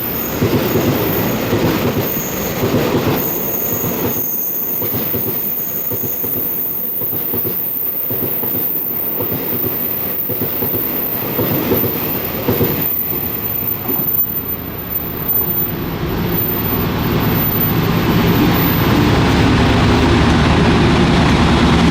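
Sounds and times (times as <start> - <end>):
train wheels rumbling on track: 0.0 - 21.9
thin high whine: 12.2 - 20.6.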